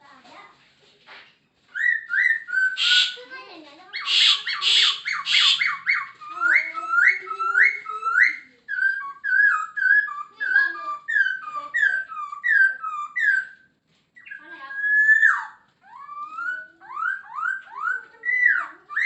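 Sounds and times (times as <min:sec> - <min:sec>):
harsh bird calls: 0:01.7 - 0:19.0
bird singing slurred whistles: 0:01.8 - 0:03.2, 0:04.0 - 0:13.6.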